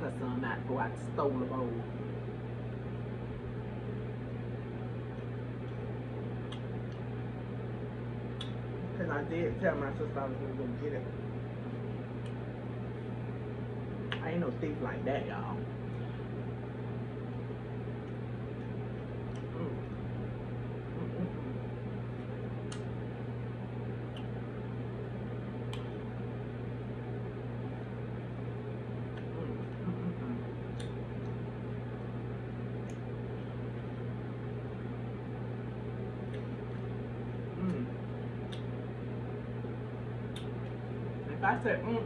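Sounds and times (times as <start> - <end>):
low electrical hum: 0.0 - 42.0
chewing soft food: 3.6 - 8.8, 11.1 - 13.2, 15.7 - 41.2
faint small clicks: 30.7 - 31.4, 38.5 - 38.7.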